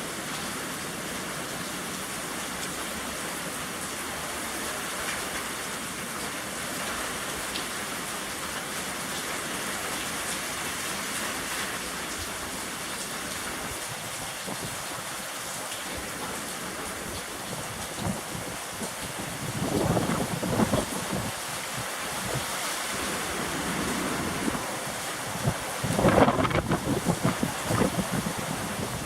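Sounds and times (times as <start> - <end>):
rain falling: 0.0 - 29.0
wind rumbling on microphone: 13.4 - 15.1, 16.9 - 29.0.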